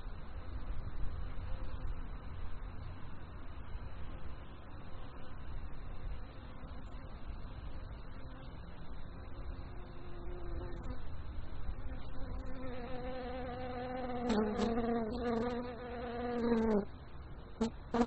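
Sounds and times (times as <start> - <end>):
flying insect buzzing: 11.9 - 16.9.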